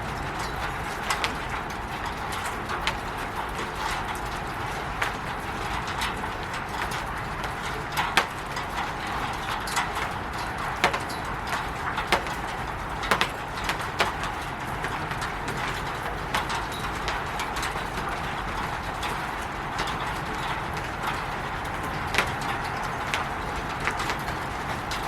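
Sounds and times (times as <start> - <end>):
rain on a roof: 0.0 - 25.0
drips knocking: 7.6 - 17.7.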